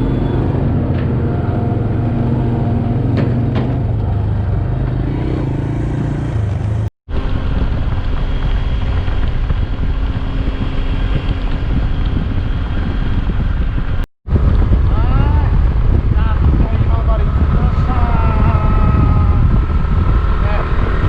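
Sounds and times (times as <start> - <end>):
vehicle engine running: 0.0 - 20.6.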